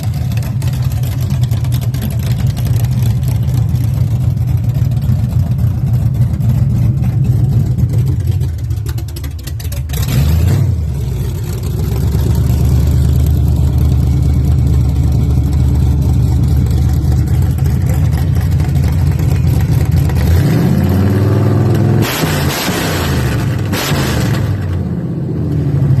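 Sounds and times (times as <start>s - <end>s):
pickup truck engine revving: 9.6s - 14.9s, 15.5s - 25.9s.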